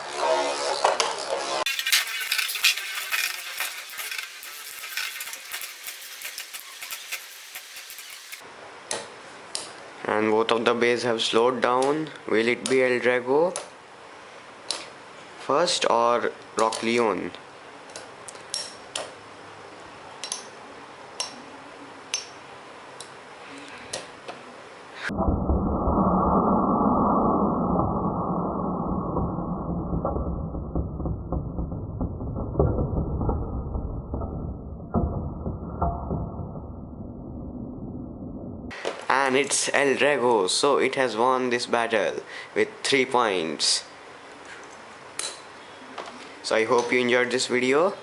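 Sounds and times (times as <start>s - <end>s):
spinning tops clashing and scraping: 1.7s - 8.4s.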